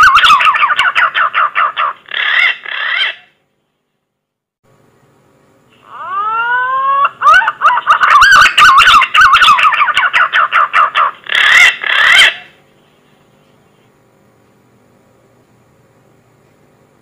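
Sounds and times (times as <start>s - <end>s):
pigeon fluting whistled call: 5.9s - 10.0s.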